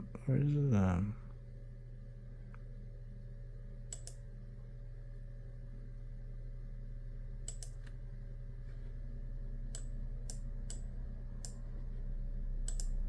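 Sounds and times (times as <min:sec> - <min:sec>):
low hum: 0:08.4 - 0:13.0.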